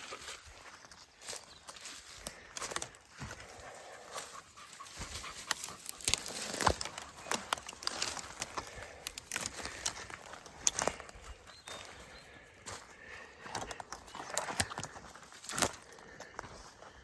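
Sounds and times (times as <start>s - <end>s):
footsteps crunching through brush: 0.0s - 17.0s
rustling: 2.3s - 11.3s
twigs snapping: 5.0s - 11.4s, 13.6s - 16.4s.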